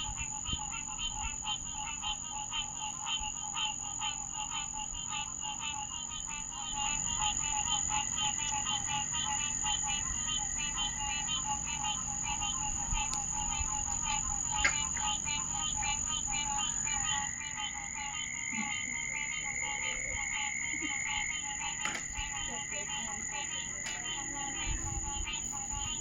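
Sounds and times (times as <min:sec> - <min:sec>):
frogs calling in chorus: 0:00.0 - 0:26.0
steady high-pitched whine: 0:00.0 - 0:26.0.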